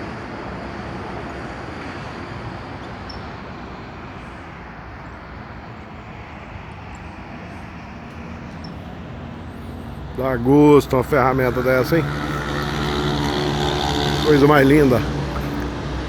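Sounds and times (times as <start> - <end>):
truck diesel engine running: 5.2 - 16.0.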